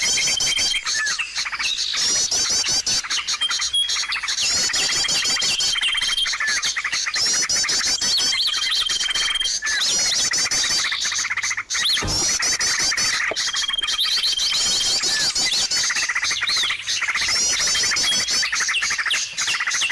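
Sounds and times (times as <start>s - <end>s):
songbirds chirping: 8.0s - 19.9s.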